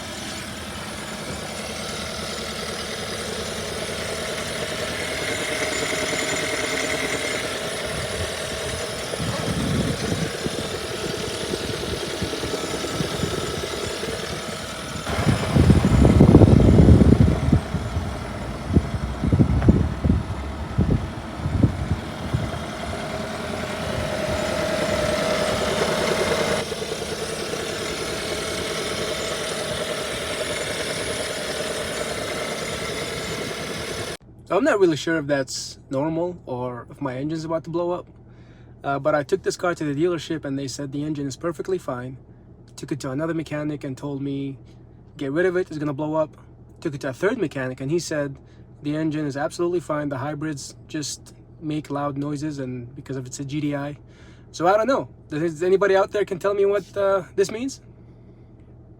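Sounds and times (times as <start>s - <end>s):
car engine ticking: 0.0s - 34.2s.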